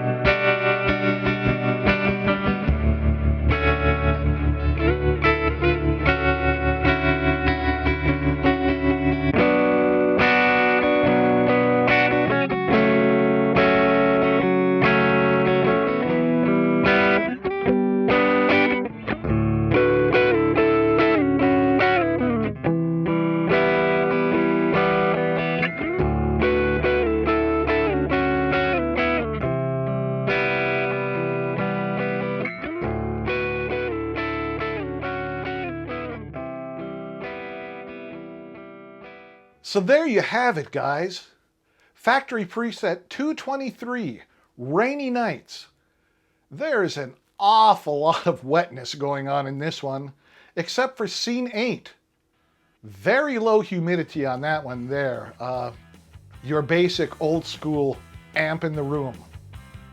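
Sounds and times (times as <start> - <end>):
distorted electric guitar chords: 0.0 - 40.3, 54.2 - 59.9.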